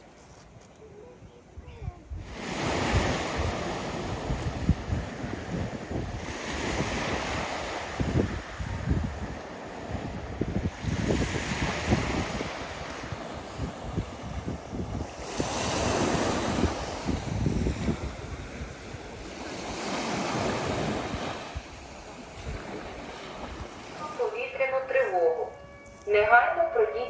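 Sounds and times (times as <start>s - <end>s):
wind buffeting microphone: 1.6s - 24.4s
waves breaking on beach: 2.2s - 24.5s.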